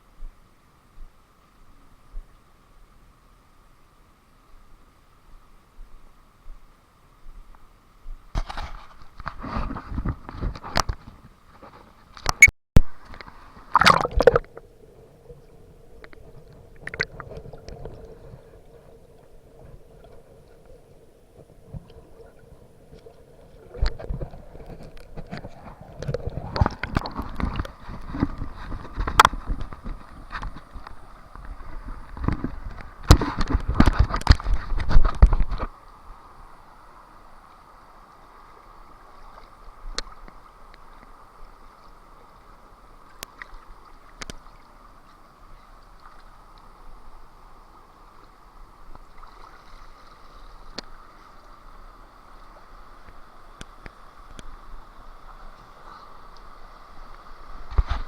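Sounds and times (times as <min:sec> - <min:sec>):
water splashing and sloshing: 0:08.2 - 0:35.8, 0:38.1 - 0:58.0
steady hiss: 0:34.8 - 0:58.0
faint clicks: 0:50.7 - 0:51.6, 0:53.0 - 0:54.6.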